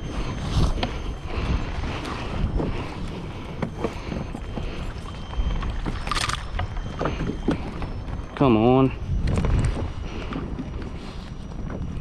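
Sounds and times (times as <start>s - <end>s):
wind buffeting microphone: 0.0s - 12.0s
fishing gear clicks and knocks: 2.0s - 8.4s.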